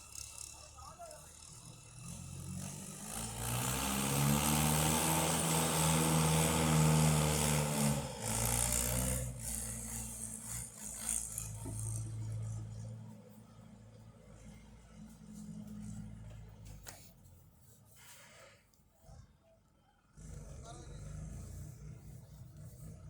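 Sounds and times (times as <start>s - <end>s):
tractor engine running: 0.0s - 17.6s.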